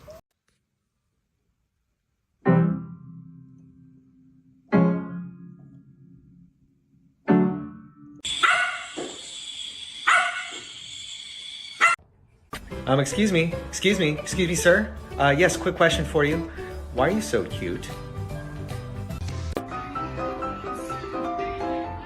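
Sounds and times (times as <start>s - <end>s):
piano notes ringing: 2.4s - 8.2s
dog barking: 8.3s - 9.0s, 10.0s - 10.6s, 11.8s - 12.0s.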